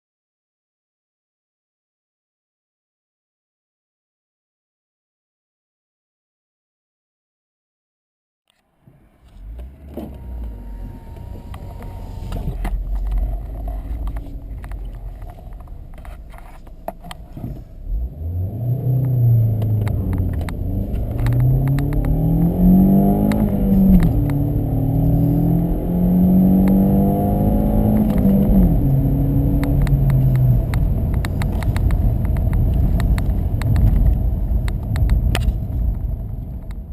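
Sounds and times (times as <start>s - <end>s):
car engine accelerating: 8.6s - 36.9s.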